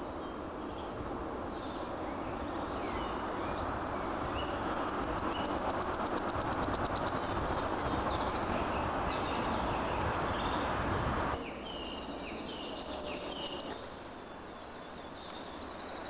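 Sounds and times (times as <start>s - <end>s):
songbird rapid trill: 0.0s - 9.5s.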